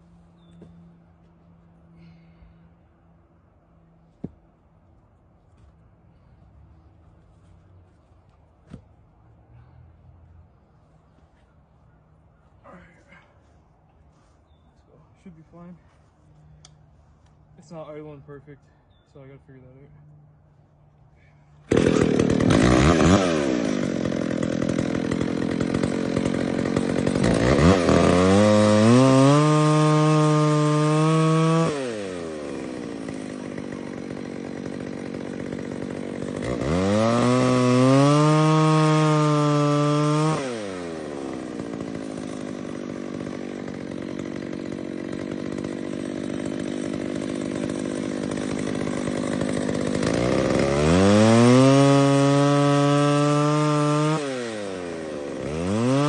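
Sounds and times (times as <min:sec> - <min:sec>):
chainsaw revving: 0:21.6 - 0:56.0.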